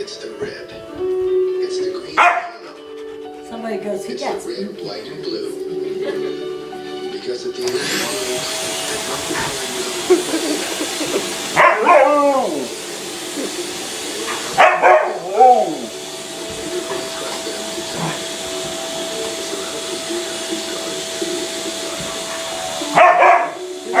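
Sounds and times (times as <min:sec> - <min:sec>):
vacuum cleaner running: 0:00.0 - 0:24.0
dog barking: 0:02.2 - 0:02.6, 0:11.6 - 0:12.7, 0:14.3 - 0:15.9, 0:22.9 - 0:24.0.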